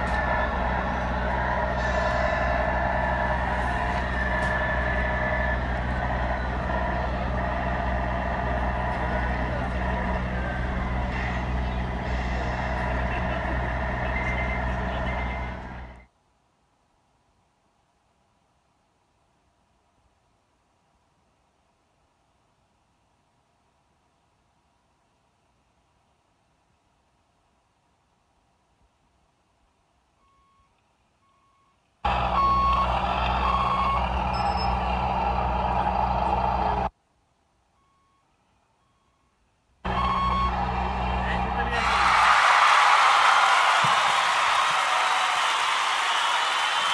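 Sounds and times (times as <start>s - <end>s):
reversing alarm beeping: 0.0s - 16.0s, 30.2s - 36.9s, 37.8s - 41.8s
diesel truck engine sound effect: 0.0s - 16.1s, 32.0s - 36.9s, 39.8s - 46.9s.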